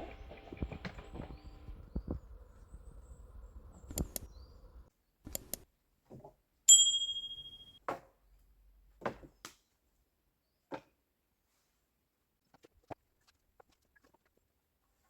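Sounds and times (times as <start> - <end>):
sharp clicks and knocks: 0.0 - 5.6
metallic ding: 6.7 - 7.8.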